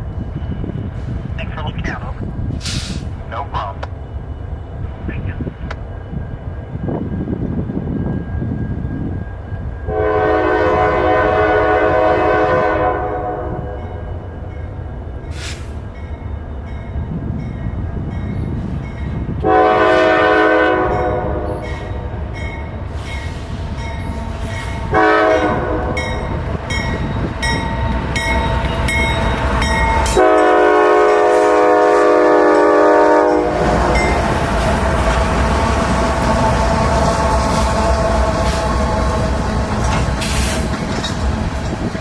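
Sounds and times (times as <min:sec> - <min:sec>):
low rumble of train: 0:00.0 - 0:42.0
train cars rolling on rails: 0:00.0 - 0:42.0
locomotive horn blasts: 0:09.9 - 0:13.8, 0:19.4 - 0:21.6, 0:24.9 - 0:26.4, 0:30.0 - 0:34.1.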